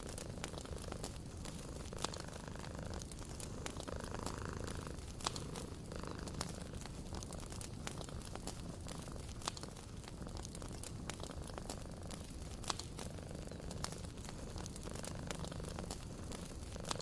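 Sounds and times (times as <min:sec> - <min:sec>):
cat purring: 0:00.0 - 0:17.0
wood fire crackling: 0:00.0 - 0:17.0.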